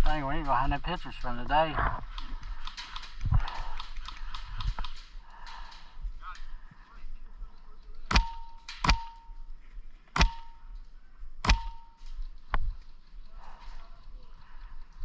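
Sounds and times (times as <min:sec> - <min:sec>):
airsoft gun shots with metallic ring: 0:08.1 - 0:09.4, 0:10.2 - 0:10.6, 0:11.4 - 0:12.1.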